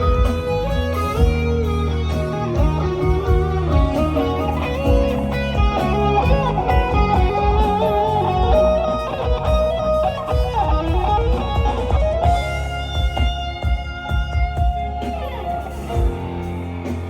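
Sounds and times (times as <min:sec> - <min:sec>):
bass guitar: 0:00.0 - 0:17.0
drums: 0:00.0 - 0:17.0
electric guitar lead bending notes: 0:00.0 - 0:17.0.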